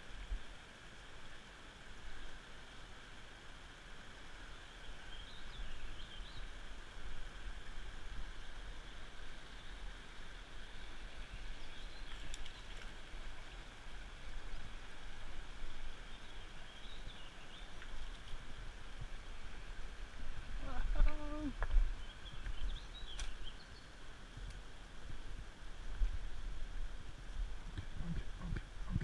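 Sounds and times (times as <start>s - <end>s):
wind rumble on microphone: 24.3s - 29.0s.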